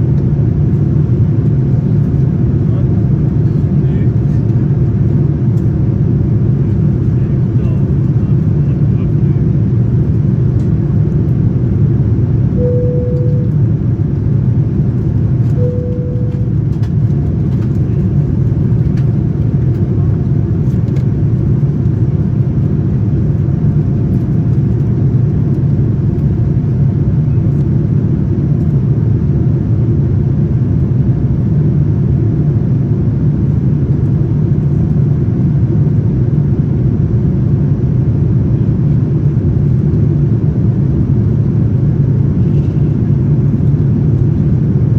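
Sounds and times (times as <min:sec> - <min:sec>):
airplane engines and airflow rumble: 0:00.0 - 0:44.9
short single-pitch tones: 0:12.6 - 0:13.7, 0:15.6 - 0:16.6.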